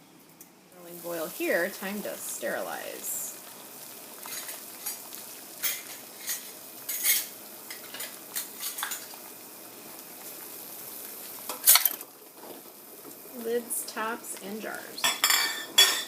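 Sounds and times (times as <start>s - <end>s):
boiling water hissing: 0.0s - 16.0s
glass jars clinking against pot: 15.0s - 16.0s.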